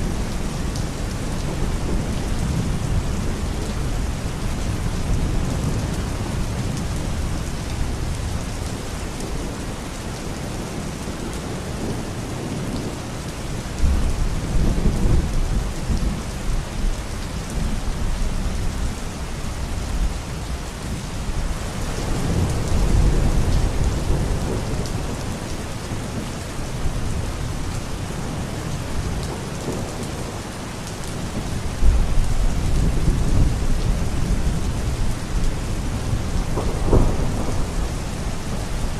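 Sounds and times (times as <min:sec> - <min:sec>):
steady rain: 0:00.0 - 0:38.9
distant thunder rumbling: 0:31.4 - 0:38.9.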